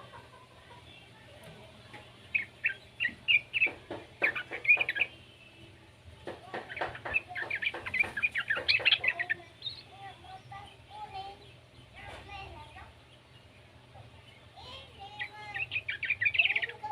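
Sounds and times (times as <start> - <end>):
bulbul chirping: 2.3 - 5.2, 6.6 - 9.8.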